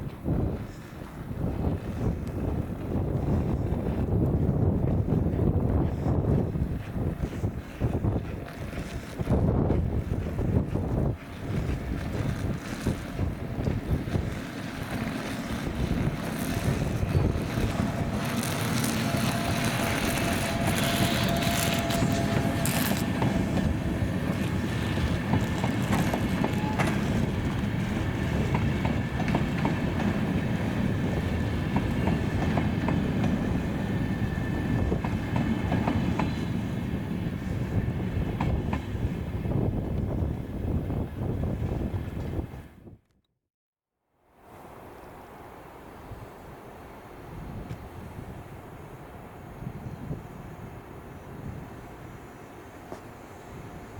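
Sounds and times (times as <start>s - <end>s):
train rumbling past: 0.0s - 42.8s, 44.4s - 53.9s
wheels clicking over rails: 7.2s - 30.3s.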